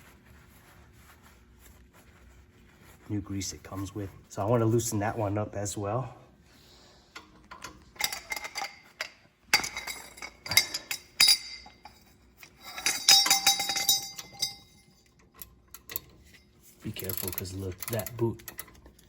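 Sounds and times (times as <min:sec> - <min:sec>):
metal tools clinking on metal: 0:07.5 - 0:18.8.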